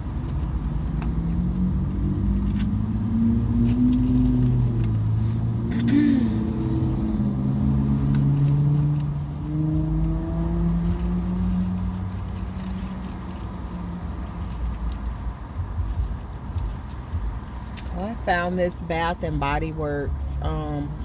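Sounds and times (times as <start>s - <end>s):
car engine hum: 0.0s - 21.0s
low road rumble: 0.0s - 21.0s.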